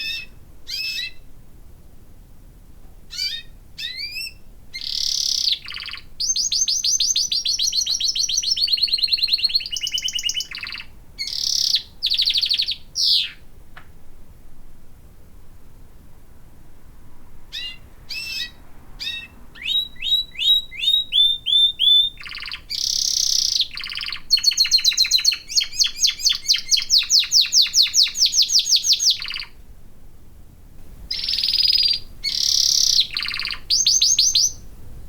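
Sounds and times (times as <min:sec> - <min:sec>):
canary singing: 0:00.0 - 0:01.2, 0:03.1 - 0:13.4, 0:17.5 - 0:29.6, 0:31.0 - 0:34.8.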